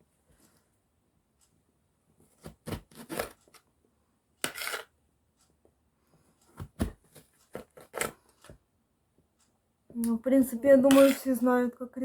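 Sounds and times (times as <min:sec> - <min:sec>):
knife scraping cut: 0:04.4 - 0:04.9.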